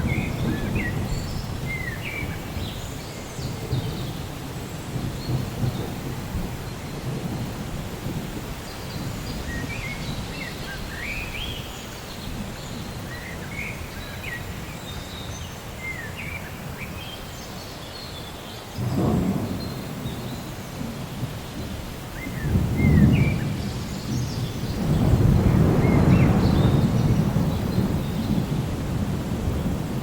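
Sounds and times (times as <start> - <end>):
low rumble of thunder: 0.0 - 16.9, 18.7 - 30.0
steady rain: 0.0 - 30.0.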